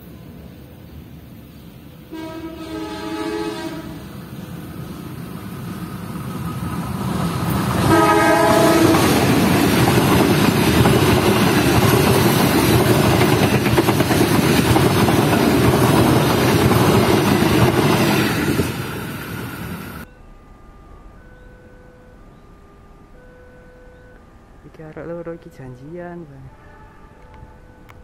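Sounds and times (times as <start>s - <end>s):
locomotive horn blast: 2.1s - 4.1s, 7.8s - 9.2s
train wheels clattering on rails: 4.7s - 20.0s.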